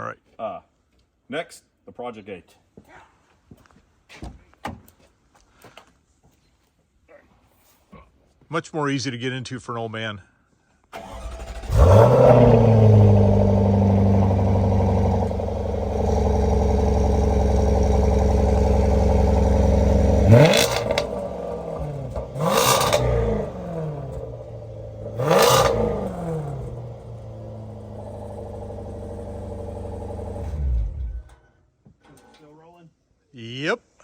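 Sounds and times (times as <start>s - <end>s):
car engine starting and idling: 10.9s - 31.5s
engine revving: 11.0s - 31.3s.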